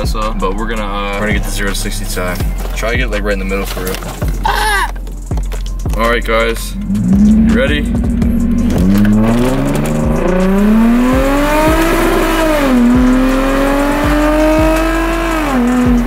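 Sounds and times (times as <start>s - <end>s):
car engine accelerating: 6.0s - 16.0s.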